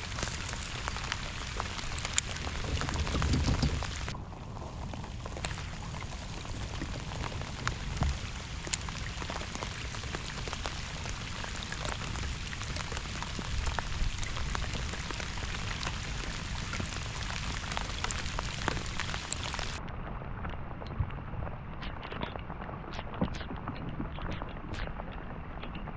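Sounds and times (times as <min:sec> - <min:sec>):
sharp raindrop hits: 0:00.0 - 0:04.2, 0:05.2 - 0:19.8
rain falling: 0:00.0 - 0:19.8.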